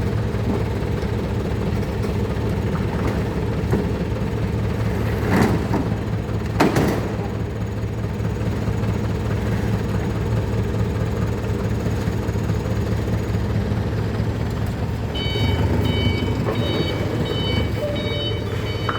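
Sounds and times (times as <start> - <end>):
vehicle engine idling: 0.0 - 18.9
electronic beeper multi-tone beeps: 15.2 - 18.9.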